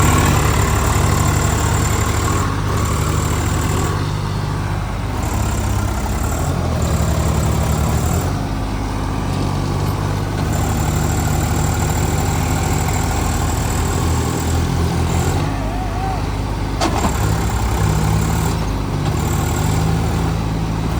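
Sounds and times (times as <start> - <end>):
diesel tractor engine chugging: 0.0 - 20.9.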